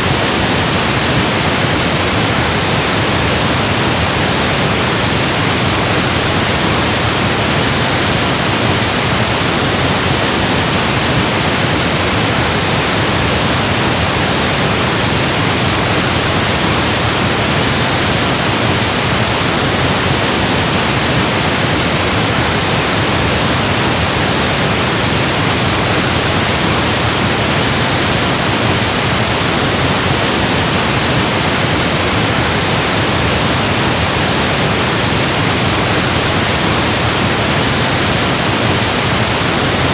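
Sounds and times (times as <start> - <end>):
steady pink noise hiss: 0.0 - 39.9.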